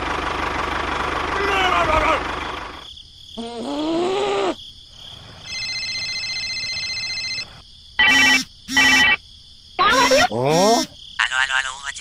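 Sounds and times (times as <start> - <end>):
electronic phone ringtone: 5.5 - 9.2
cartoon squeak: 9.8 - 11.0.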